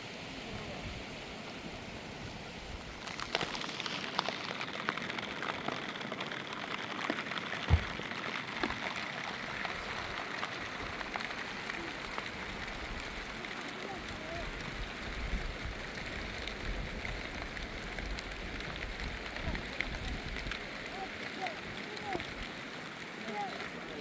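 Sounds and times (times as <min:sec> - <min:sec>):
raindrops hitting: 0:00.0 - 0:24.0
heavy low thump: 0:07.7 - 0:08.0.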